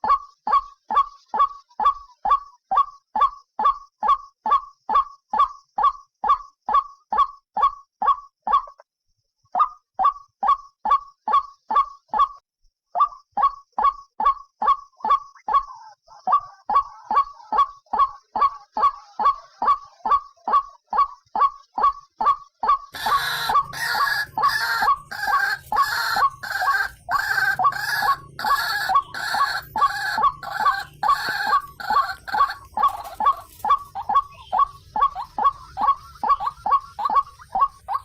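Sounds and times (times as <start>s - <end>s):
waterhen croaking calls: 0.0s - 8.8s, 13.0s - 38.0s
harsher bird calls: 13.0s - 38.0s.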